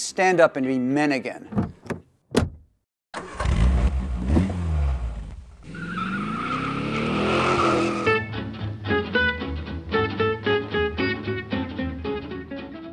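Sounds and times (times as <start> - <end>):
car engine revving and accelerating: 3.3 - 8.3
plucked guitar music: 8.0 - 12.9.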